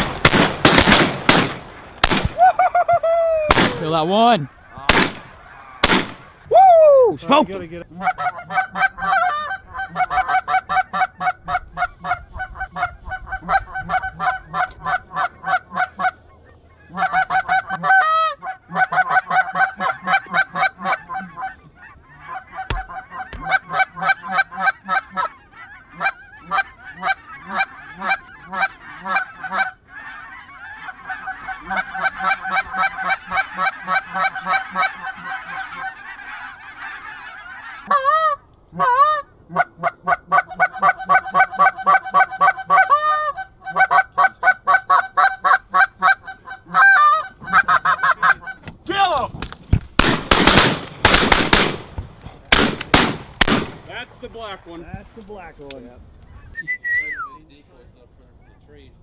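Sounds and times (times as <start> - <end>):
goose honking: 2.6 - 6.5, 7.3 - 48.7.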